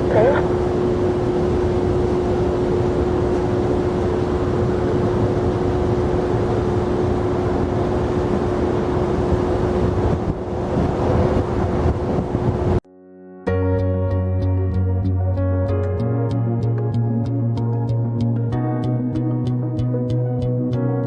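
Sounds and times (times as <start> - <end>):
jet engine rumble: 0.0 - 12.8.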